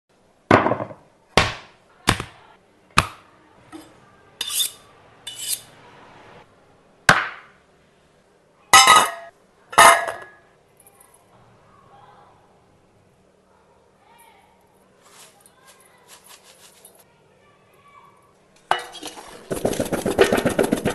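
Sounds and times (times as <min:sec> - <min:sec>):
kitchen utensils knocking: 0:08.8 - 0:10.4.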